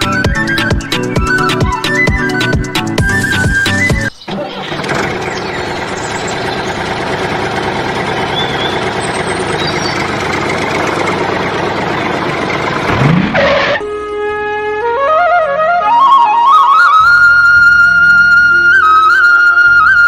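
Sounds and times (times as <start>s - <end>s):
motor running steadily: 4.6s - 13.8s.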